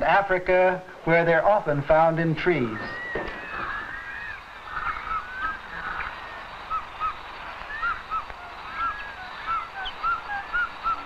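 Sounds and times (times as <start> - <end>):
birds calling: 0.0 - 11.0
bird chirps: 2.4 - 11.0.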